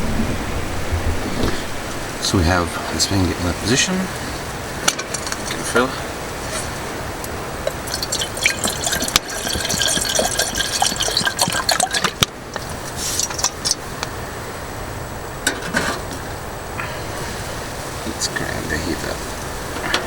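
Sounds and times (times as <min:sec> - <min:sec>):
water pouring into a pot: 0:05.4 - 0:05.8, 0:07.7 - 0:13.8.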